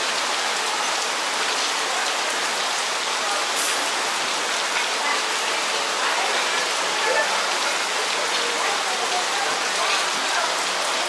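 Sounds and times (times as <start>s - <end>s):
torrential rain falling: 0.0s - 11.0s.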